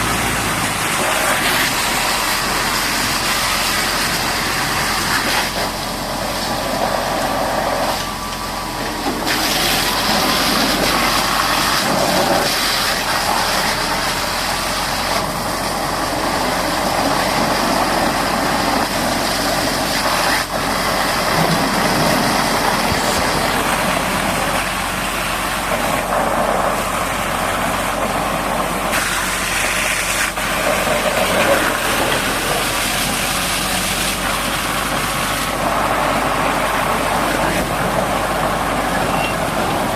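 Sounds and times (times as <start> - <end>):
dense broadband noise: 0.0 - 39.9
diesel engine running: 0.0 - 39.9.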